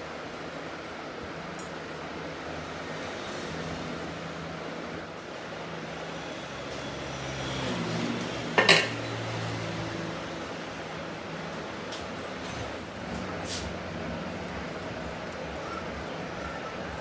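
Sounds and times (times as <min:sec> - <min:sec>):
workshop machinery humming: 0:00.0 - 0:17.0
metallic clank: 0:08.6 - 0:09.0.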